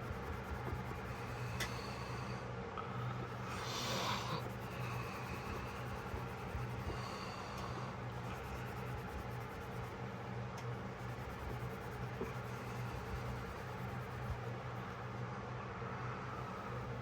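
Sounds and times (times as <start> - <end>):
steady low hum: 0.0 - 17.0
rubbing and handling noises: 3.2 - 15.2
breathy sniff: 3.4 - 8.6.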